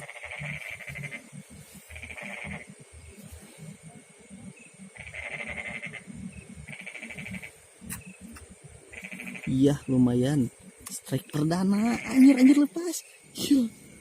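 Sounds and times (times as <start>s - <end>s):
frogs trilling: 0.0s - 14.0s.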